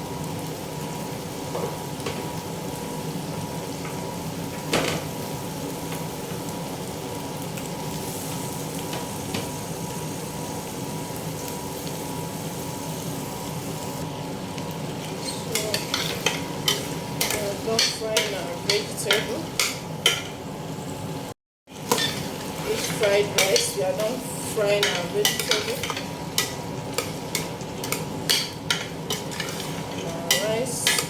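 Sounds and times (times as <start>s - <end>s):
vegetables sizzling in oil: 0.0s - 31.0s.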